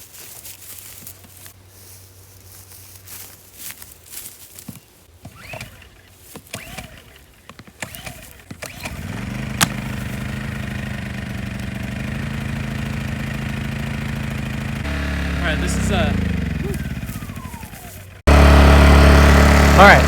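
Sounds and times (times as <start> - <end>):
generator engine running: 5.4 - 7.2, 7.8 - 20.0.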